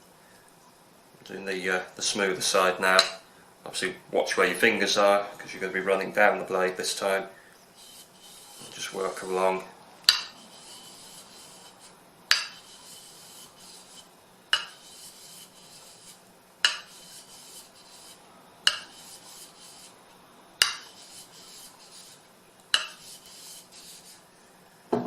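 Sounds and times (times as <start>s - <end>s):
sharpening stone scraping blade: 7.8s - 9.3s, 10.1s - 20.0s, 20.6s - 24.2s.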